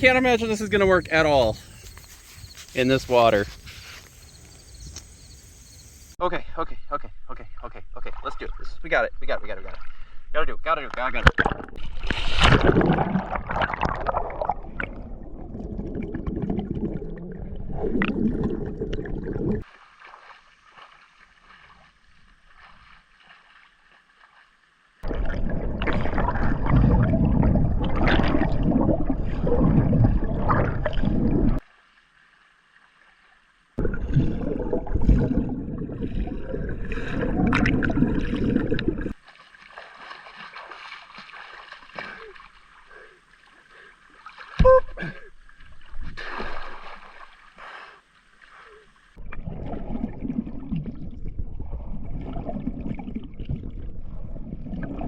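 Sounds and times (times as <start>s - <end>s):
water splashing from swimming: 11.2s - 55.0s.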